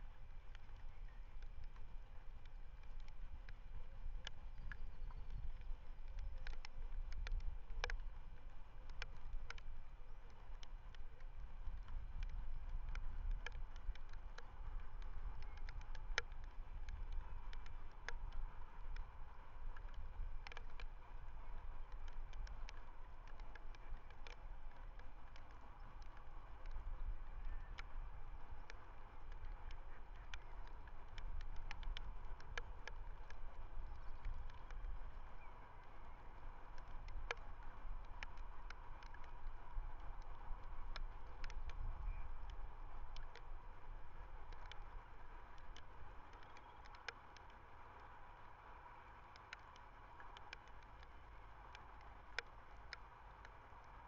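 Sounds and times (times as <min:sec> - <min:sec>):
faint sharp clicks: 0:00.0 - 0:54.0
wind rumble on microphone: 0:00.0 - 0:54.0.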